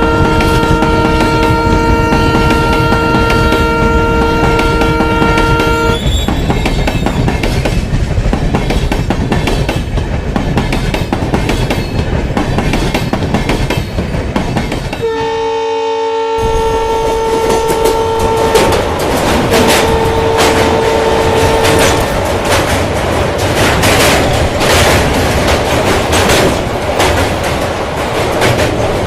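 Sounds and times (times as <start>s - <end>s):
locomotive horn blast: 0.0s - 6.1s, 15.0s - 22.1s
train wheels clickety-clack: 0.0s - 15.4s, 16.4s - 29.0s.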